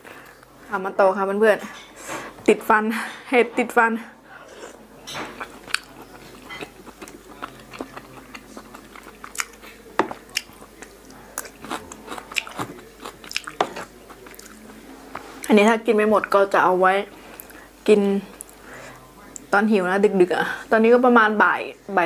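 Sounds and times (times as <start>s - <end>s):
chewing crunchy salad: 4.5s - 15.6s.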